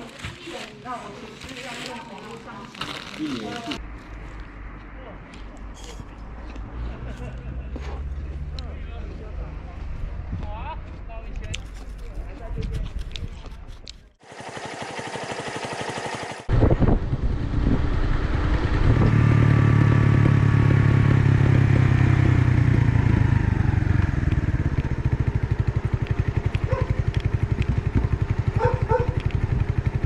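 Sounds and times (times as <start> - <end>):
motorcycle engine running: 13.7 - 30.0.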